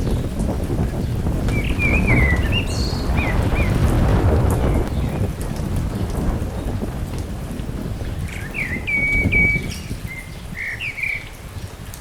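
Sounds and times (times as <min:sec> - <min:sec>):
wind buffeting microphone: 0:00.0 - 0:12.0
bird chirping and whistling: 0:01.5 - 0:03.7, 0:08.4 - 0:11.3.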